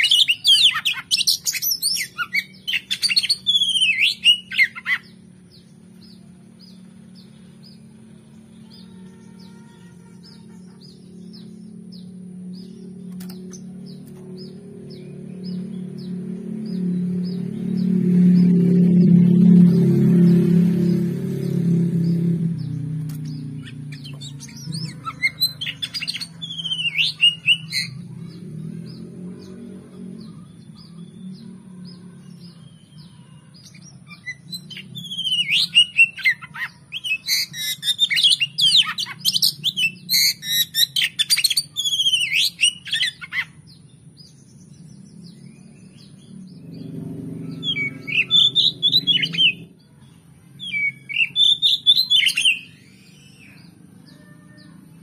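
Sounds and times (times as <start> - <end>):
magpie-robin singing: 0.0 - 18.0, 22.0 - 46.8, 47.5 - 49.8, 50.6 - 55.0
low hum: 3.4 - 33.2.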